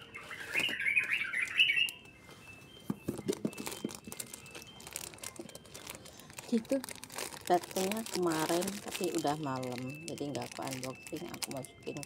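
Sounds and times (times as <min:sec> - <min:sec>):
plastic bag crinkling: 0:03.1 - 0:12.0.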